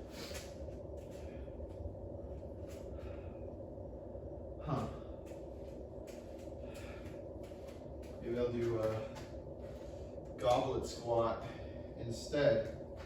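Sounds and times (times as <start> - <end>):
man breathing: 0.0 - 3.9, 4.5 - 8.2, 11.4 - 12.0
low room hum: 0.0 - 13.0.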